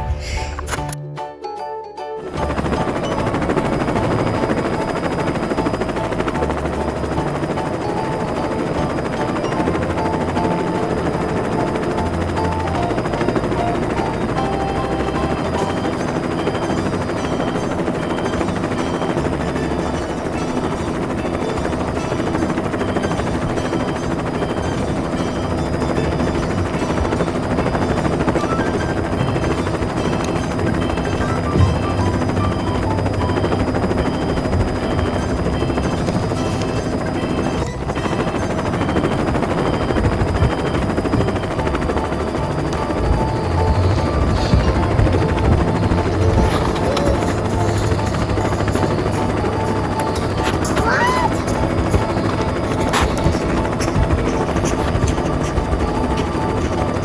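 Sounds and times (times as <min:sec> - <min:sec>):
electronic toy tune: 0:02.3 - 0:57.0
toy helicopter rotor rattle: 0:02.4 - 0:57.0.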